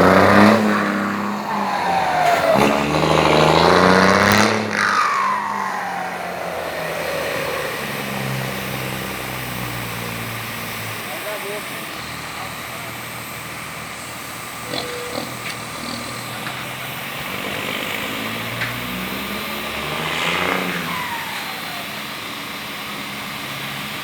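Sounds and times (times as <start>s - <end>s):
turbo whistle: 0.0s - 11.2s, 14.6s - 16.0s
truck diesel engine revving: 0.0s - 24.0s.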